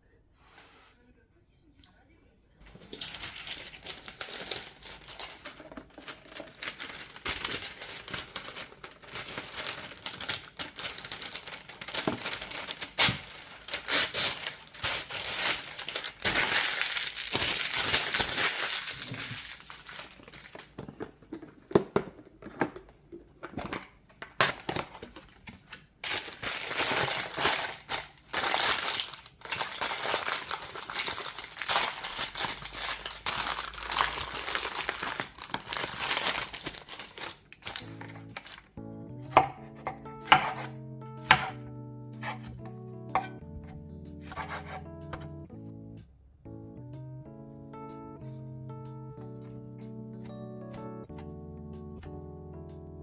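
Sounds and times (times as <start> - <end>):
wrapping crinkling and rustling: 2.6 - 40.7, 42.2 - 42.5.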